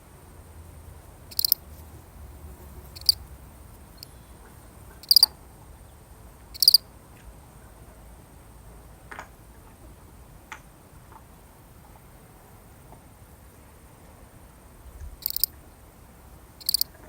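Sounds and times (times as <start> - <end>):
cricket chirping: 0.0 - 6.9, 15.0 - 17.0.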